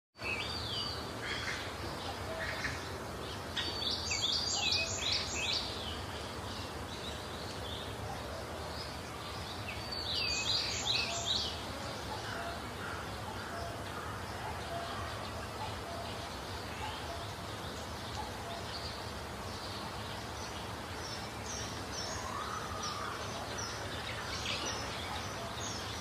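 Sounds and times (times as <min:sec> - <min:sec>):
low background noise: 0:00.2 - 0:26.0.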